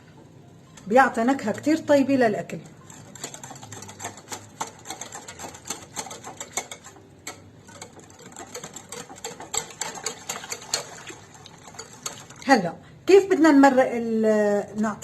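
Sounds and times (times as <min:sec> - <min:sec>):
utensil tapping against a bowl: 0:03.2 - 0:12.3.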